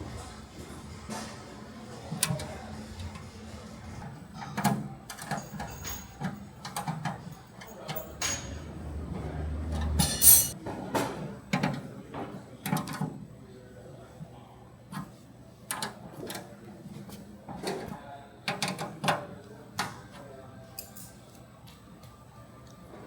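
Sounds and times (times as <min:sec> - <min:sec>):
metal clinks and knocks: 0:05.1 - 0:09.0, 0:09.8 - 0:10.6.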